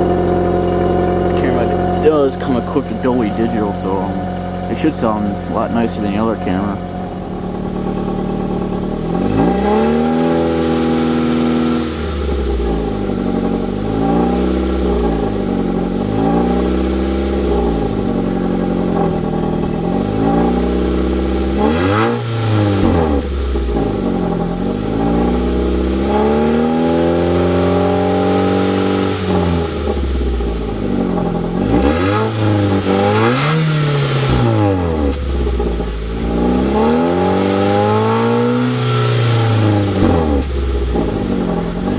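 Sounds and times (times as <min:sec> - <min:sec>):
car engine revving: 0:00.0 - 0:41.9.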